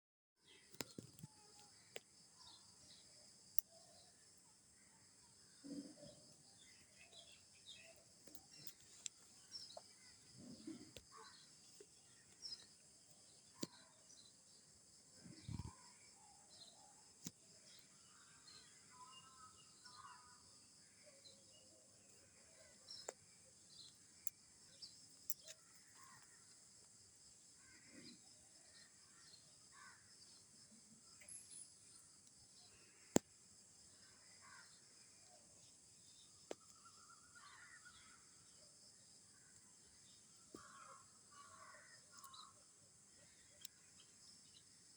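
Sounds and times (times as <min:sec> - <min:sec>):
distant bird calls: 0:05.5 - 0:14.4.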